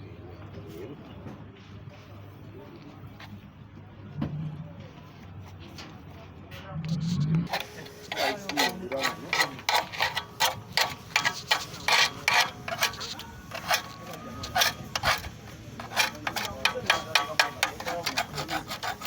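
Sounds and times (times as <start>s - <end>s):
faint voices: 0.0s - 19.0s
hand tool rasping on metal: 7.5s - 19.0s.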